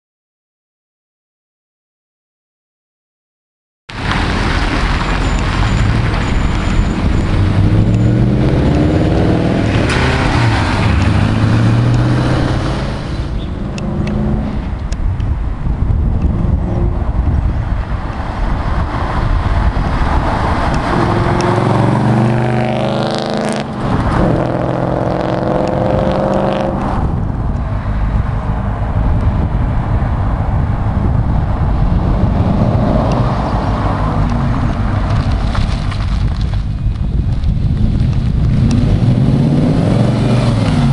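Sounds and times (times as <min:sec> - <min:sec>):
car engine accelerating: 0:04.0 - 0:15.0, 0:16.2 - 0:36.6, 0:37.5 - 0:40.9.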